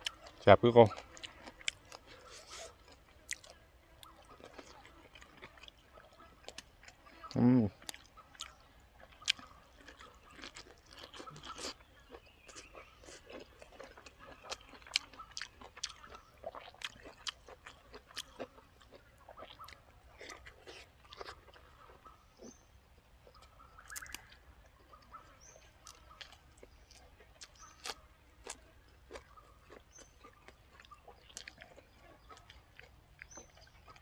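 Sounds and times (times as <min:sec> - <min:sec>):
person chewing food: 0:00.0 - 0:34.0.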